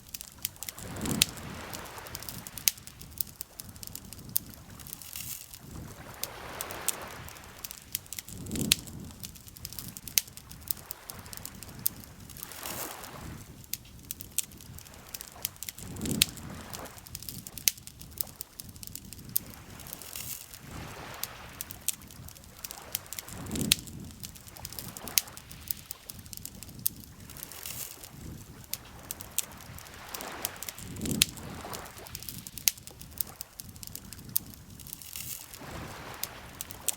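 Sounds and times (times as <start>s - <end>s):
campfire crackling and popping: 0.0s - 36.9s
lake waves lapping: 0.0s - 36.9s.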